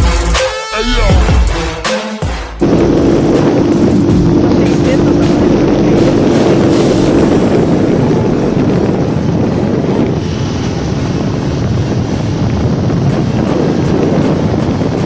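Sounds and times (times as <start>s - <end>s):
motorcycle engine running: 2.6s - 10.2s
wind rushing over microphone: 2.6s - 15.0s.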